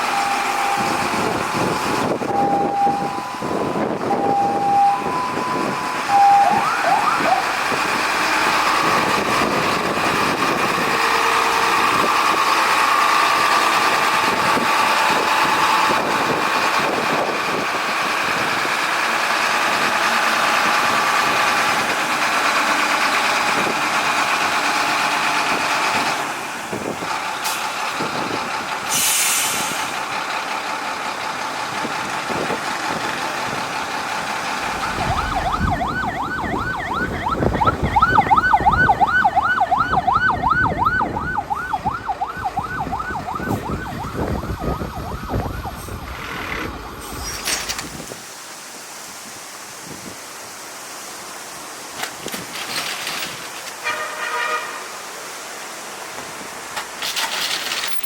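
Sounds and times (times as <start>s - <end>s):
two-tone fire truck siren: 0.0s - 18.6s, 32.3s - 47.0s
truck engine running: 0.0s - 47.8s
short hiss: 28.9s - 30.0s.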